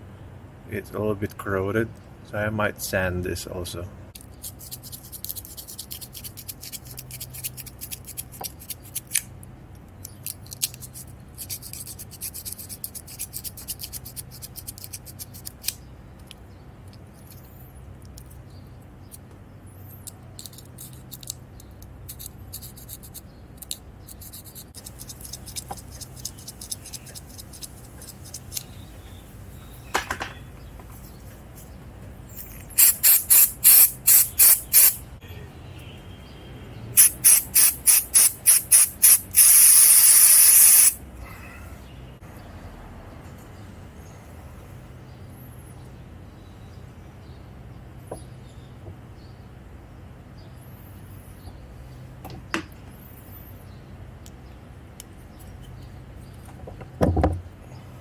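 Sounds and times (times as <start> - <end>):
sanding scratching on metal contacts: 4.4 - 9.1, 10.4 - 15.8, 22.1 - 29.1, 32.4 - 35.0, 37.0 - 41.0
contact cleaner spray bursts: 32.8 - 35.0, 37.0 - 41.0.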